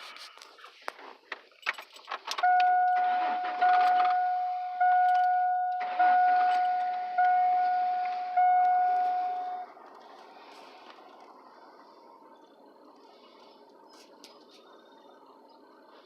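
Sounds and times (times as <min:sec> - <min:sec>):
car warning chime: 0:02.4 - 0:09.9.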